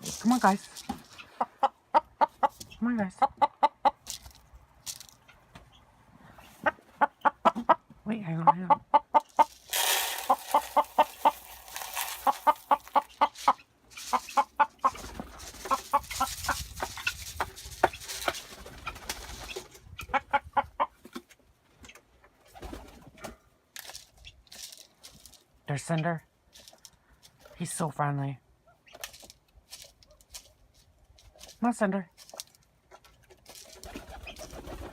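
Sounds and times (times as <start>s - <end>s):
rustling: 0.0s - 1.6s, 9.2s - 19.8s, 23.3s - 25.6s, 26.5s - 27.6s, 29.0s - 34.9s
birds clucking: 0.0s - 23.4s, 32.3s - 34.9s.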